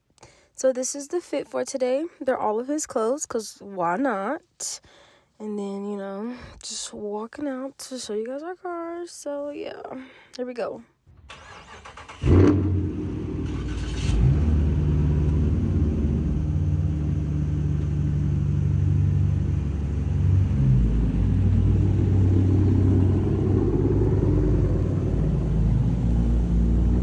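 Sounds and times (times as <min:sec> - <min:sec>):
car engine starting and idling: 0:11.1 - 0:27.0.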